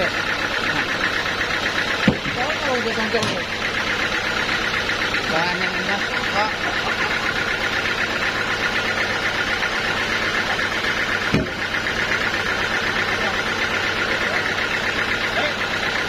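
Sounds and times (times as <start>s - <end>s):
sawmill machinery running: 0.0s - 16.0s
sharp knock: 11.3s - 11.6s.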